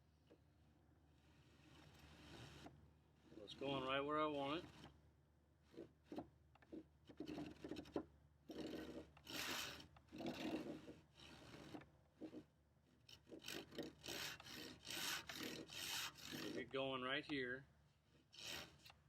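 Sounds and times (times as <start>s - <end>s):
hand saw cutting wood: 1.3s - 5.0s, 5.6s - 16.9s, 18.1s - 19.0s.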